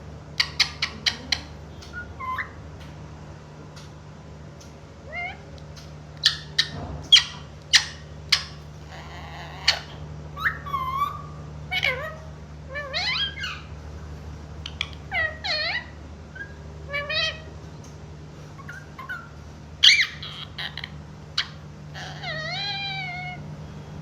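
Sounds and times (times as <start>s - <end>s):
steady low hum: 0.0s - 24.0s
parrot squawking: 0.4s - 2.6s, 5.1s - 5.5s, 6.2s - 13.8s, 14.6s - 17.5s, 18.6s - 23.4s.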